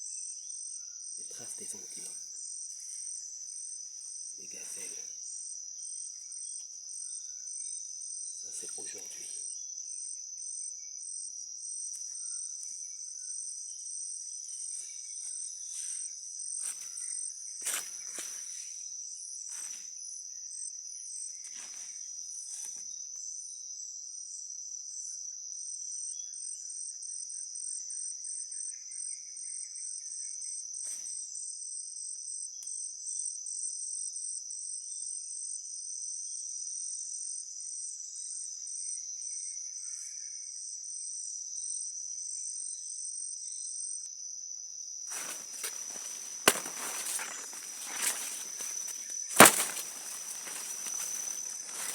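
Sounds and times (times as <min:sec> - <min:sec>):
insects shrilling: 0:45.1 - 0:51.9
short crackles: 0:45.1 - 0:51.9.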